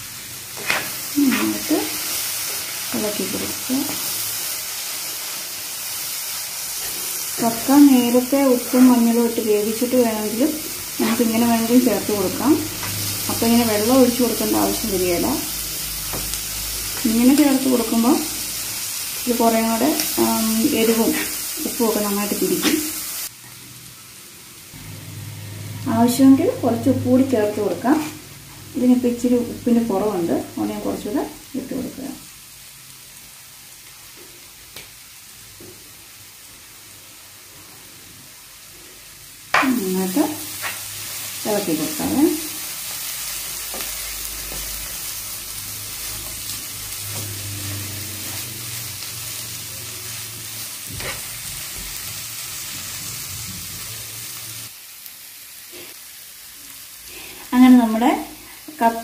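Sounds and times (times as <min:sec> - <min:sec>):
meat sizzling in a pan: 0:00.0 - 0:59.0
spatula scraping a pan: 0:21.0 - 0:21.5, 0:40.5 - 0:40.9.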